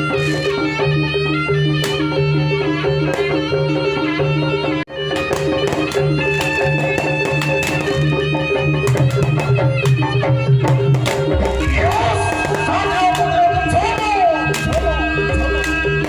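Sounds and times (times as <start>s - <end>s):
held instrumental notes: 0.0s - 16.0s
sliding melody line: 0.0s - 16.0s
drums tapping a rhythm: 4.8s - 16.0s.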